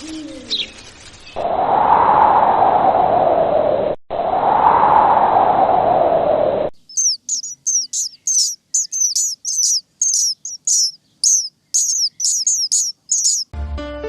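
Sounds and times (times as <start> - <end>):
small bird chirping: 0.0 - 1.4, 6.8 - 13.5.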